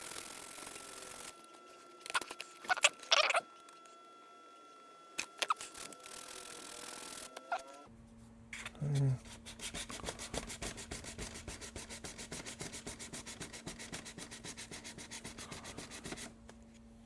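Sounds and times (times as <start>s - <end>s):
sandpaper rubbing on plastic: 8.6s - 16.4s
short low voice-like sound: 8.8s - 9.2s.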